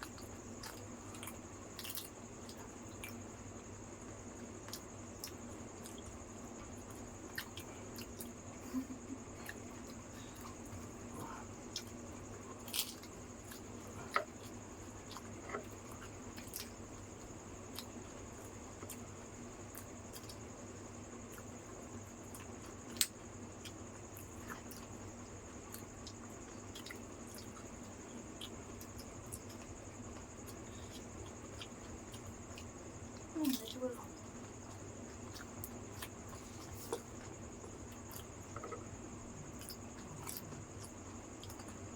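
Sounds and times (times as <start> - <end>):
background hum: 0.0 - 41.9
wet chewing: 25.6 - 41.8.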